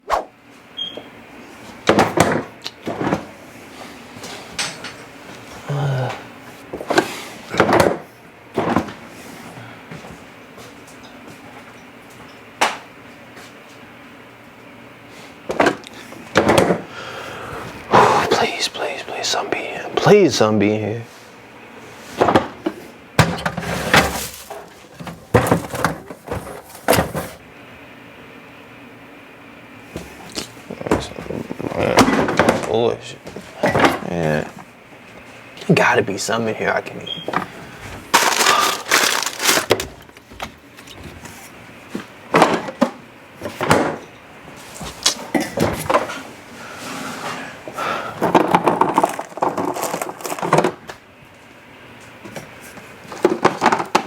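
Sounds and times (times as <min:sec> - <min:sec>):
knocks and clatters in refrigerator: 0:01.8 - 0:03.4, 0:06.8 - 0:09.0, 0:15.5 - 0:16.9, 0:22.2 - 0:27.4, 0:30.7 - 0:34.1, 0:41.9 - 0:44.1, 0:44.9 - 0:46.2, 0:48.2 - 0:50.9, 0:53.1 - 0:54.0
rustling: 0:38.2 - 0:39.8.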